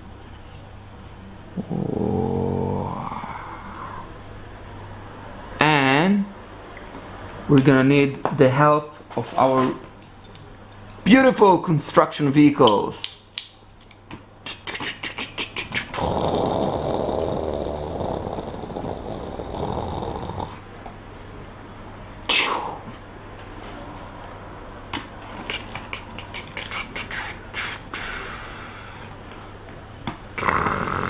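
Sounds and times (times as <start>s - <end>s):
person imitating engine rumble: 1.5s - 4.2s, 14.5s - 20.6s, 25.0s - 29.1s, 30.4s - 31.0s.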